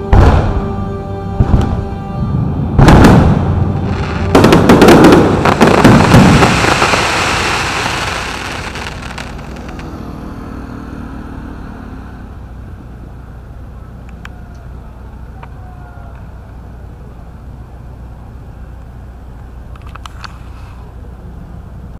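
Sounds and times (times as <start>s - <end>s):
low background noise: 0.0s - 21.9s
fireworks bangs and crackling: 0.1s - 0.7s, 2.8s - 9.9s.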